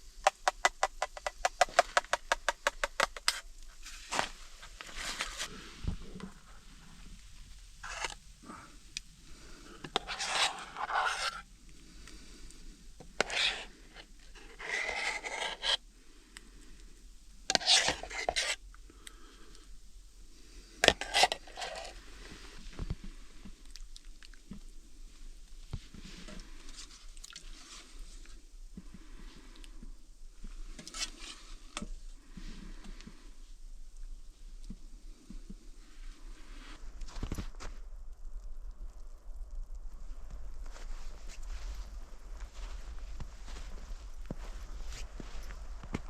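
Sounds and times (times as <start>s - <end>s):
scraping and rustling: 0.4s - 7.1s, 7.8s - 8.7s, 9.5s - 11.5s, 13.1s - 15.8s, 17.5s - 18.6s, 20.8s - 22.0s.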